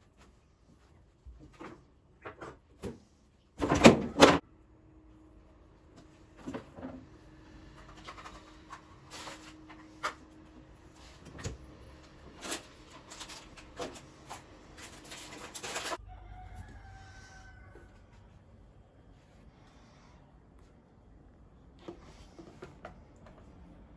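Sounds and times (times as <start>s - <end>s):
containers and food handled: 7.7s - 16.0s, 21.7s - 23.9s.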